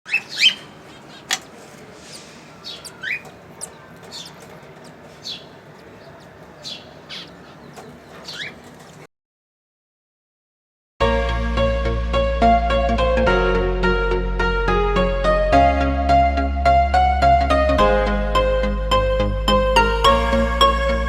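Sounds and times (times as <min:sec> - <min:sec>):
cockatiels chirping: 0:00.1 - 0:08.9.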